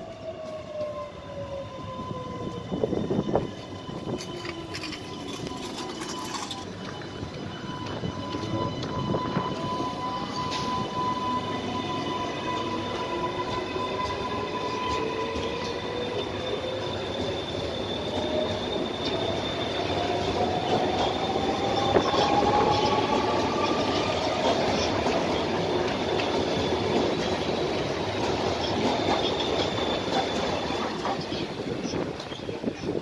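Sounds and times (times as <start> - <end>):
electric train motors whining: 0.1 - 33.0
high ringing tone: 3.1 - 20.4.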